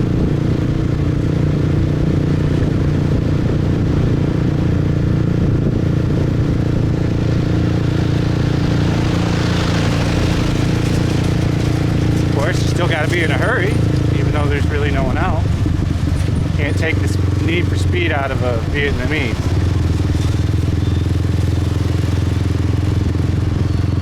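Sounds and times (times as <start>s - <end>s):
motorbike engine running: 0.0s - 24.0s.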